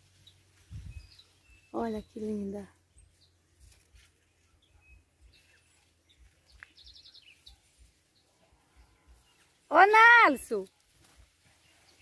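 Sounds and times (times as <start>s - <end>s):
faint bird chirps: 0.1s - 9.5s.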